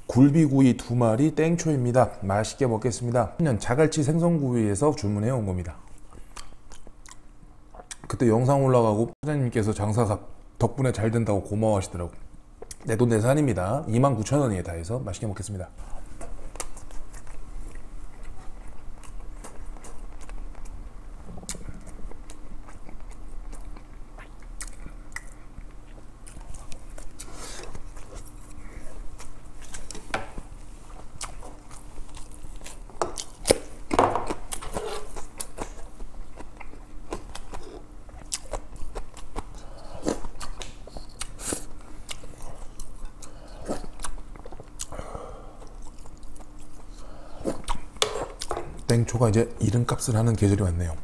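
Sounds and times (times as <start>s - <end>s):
person chewing with wet clicks: 6.1s - 8.1s, 12.6s - 12.9s, 16.5s - 28.6s, 29.2s - 44.9s, 45.6s - 49.0s.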